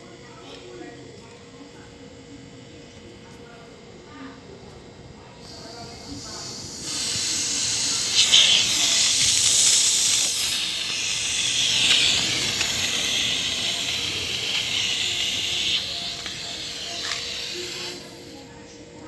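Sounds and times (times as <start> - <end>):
compressed air hissing: 5.4 - 18.6.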